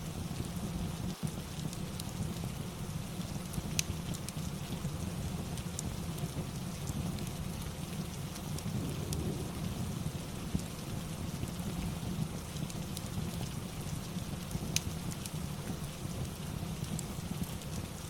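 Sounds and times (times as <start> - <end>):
steady rain: 0.0 - 18.0
wood fire crackling and popping: 0.1 - 18.0
low rumble: 8.7 - 10.8.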